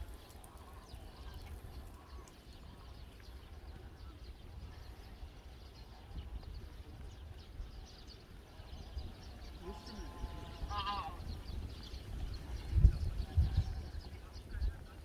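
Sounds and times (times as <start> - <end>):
wind on microphone: 0.0 - 15.0
wetland birds calling: 8.5 - 14.9.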